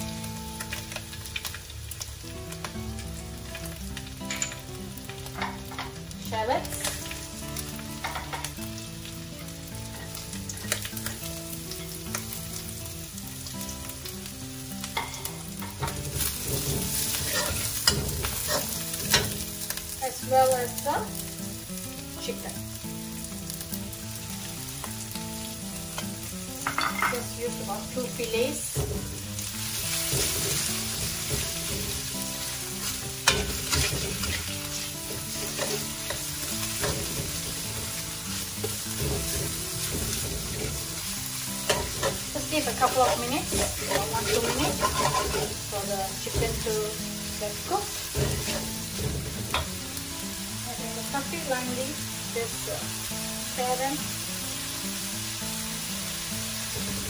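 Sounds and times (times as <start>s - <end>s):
food sizzling in hot oil: 0.0s - 57.0s
metal spatula scraping wok: 15.0s - 19.4s, 29.9s - 41.0s, 41.6s - 45.8s.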